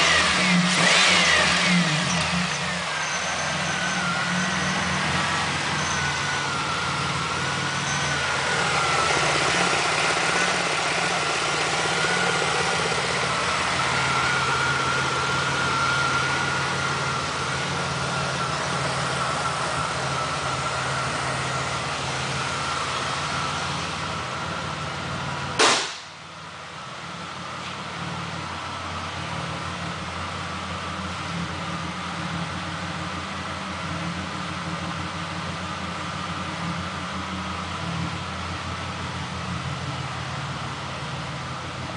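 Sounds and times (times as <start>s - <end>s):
car engine idling: 0.0s - 41.9s
sharp bang: 25.6s - 26.3s.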